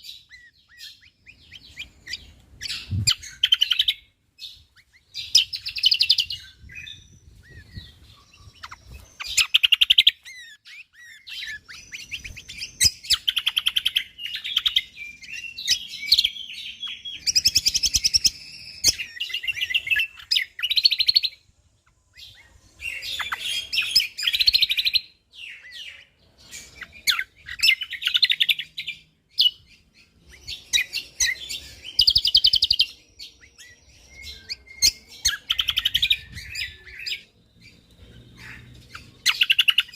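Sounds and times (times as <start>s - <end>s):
songbird chirps and trills: 0.0s - 39.9s.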